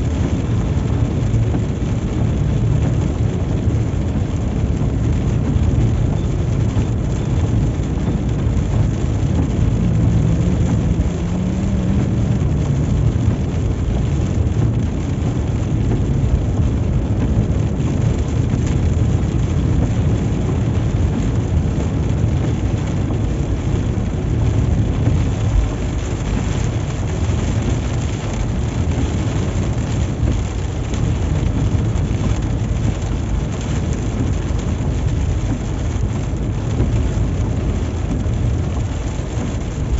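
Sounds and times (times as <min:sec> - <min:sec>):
heavy rain on car body: 0:00.0 - 0:39.9
tyres on wet road: 0:00.0 - 0:39.9.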